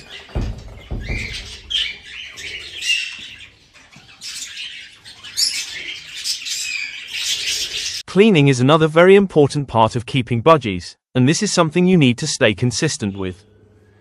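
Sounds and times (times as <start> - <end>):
budgerigars chirping and chattering: 0.0 - 8.0.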